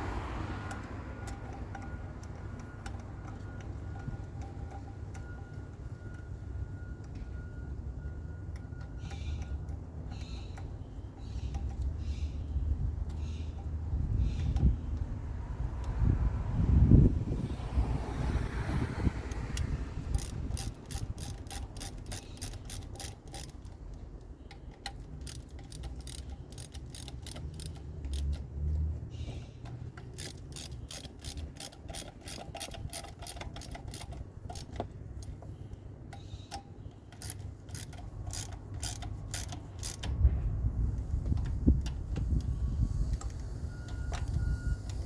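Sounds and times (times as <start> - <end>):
socket ratchet clicking: 19.3 - 28.5, 29.6 - 35.4, 36.1 - 40.2.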